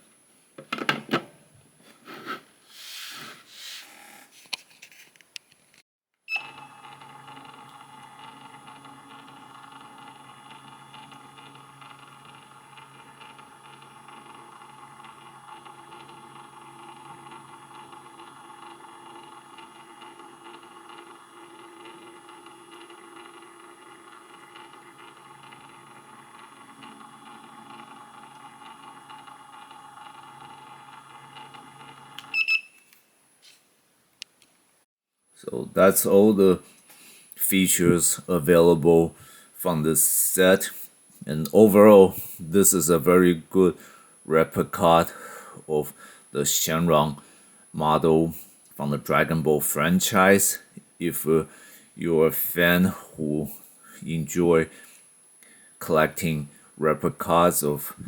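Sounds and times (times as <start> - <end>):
plastic parts knocking and scraping: 0.6 - 1.4
faint electrical hum: 35.4 - 58.0.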